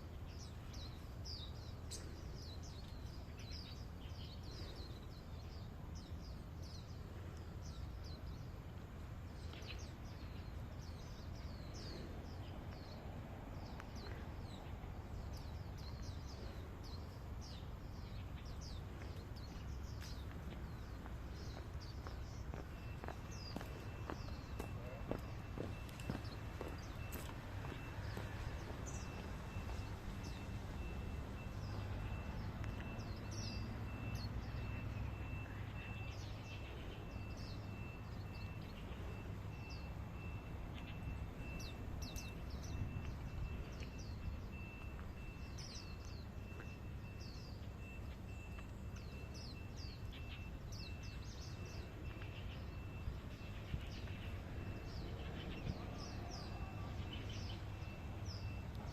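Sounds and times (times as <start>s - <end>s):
birds chirping: 0.0s - 58.9s
cicadas buzzing: 12.1s - 45.1s.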